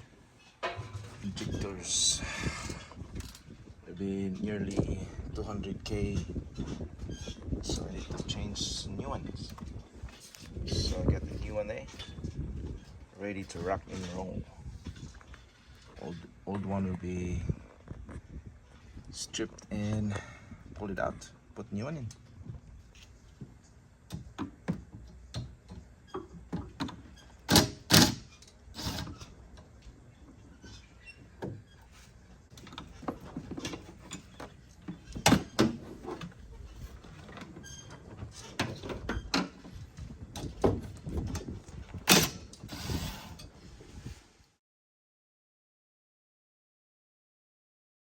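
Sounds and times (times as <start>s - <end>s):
hand tools clicking and clunking: 0.0s - 1.7s, 23.0s - 43.5s
short metal scrapes: 42.2s - 43.5s.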